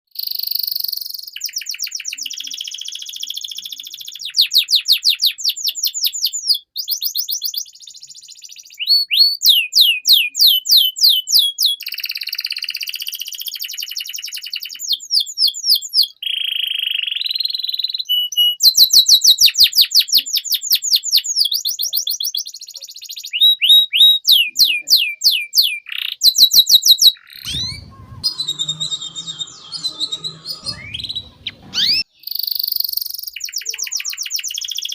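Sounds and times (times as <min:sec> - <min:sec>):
canary singing: 0:13.9 - 0:34.9.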